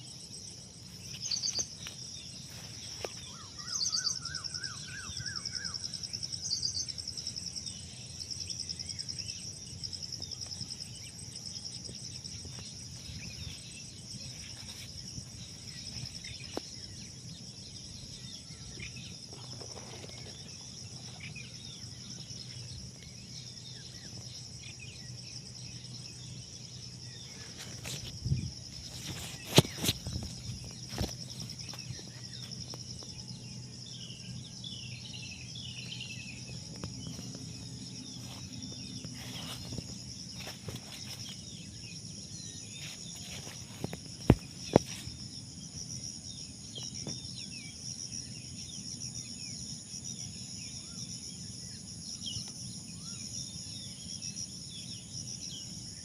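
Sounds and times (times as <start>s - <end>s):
high-pitched insect trill: 0.0s - 56.0s
birds calling: 0.9s - 5.9s.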